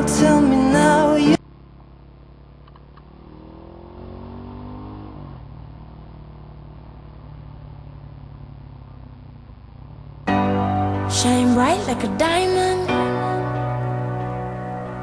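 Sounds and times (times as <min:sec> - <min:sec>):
motorcycle engine accelerating: 0:00.0 - 0:10.3.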